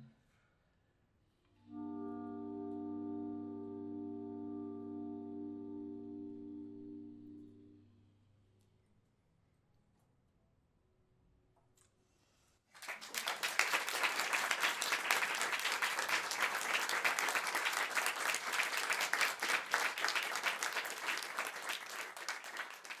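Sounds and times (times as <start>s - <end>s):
audience applauding: 12.8s - 23.0s.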